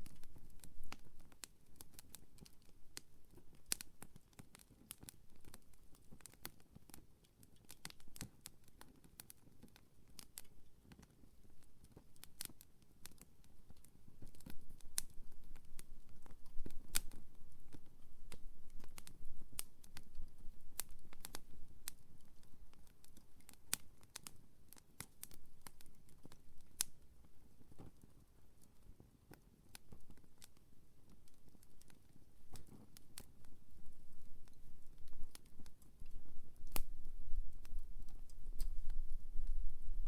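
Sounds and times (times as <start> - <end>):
campfire crackling and popping: 0.0 - 40.0
low rumble of flames: 13.1 - 27.8, 31.2 - 40.0.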